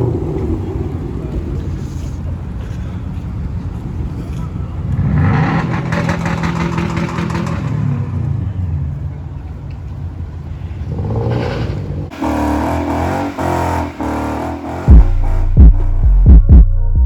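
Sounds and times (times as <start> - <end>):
car engines revving: 0.0 - 16.2
music with throbbing beat: 14.8 - 17.0.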